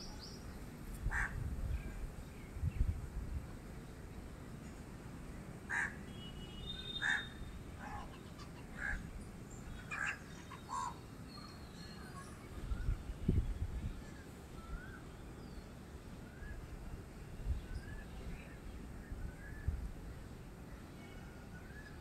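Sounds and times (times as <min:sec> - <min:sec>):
birds calling: 0:05.7 - 0:12.9.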